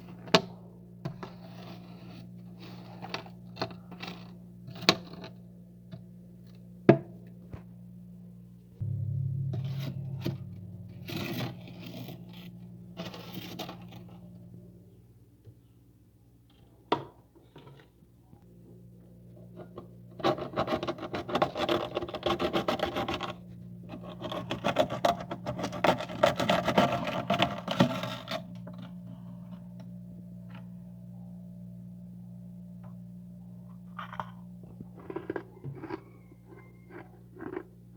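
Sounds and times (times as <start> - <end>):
steady low hum: 0.0 - 16.3, 26.4 - 36.3.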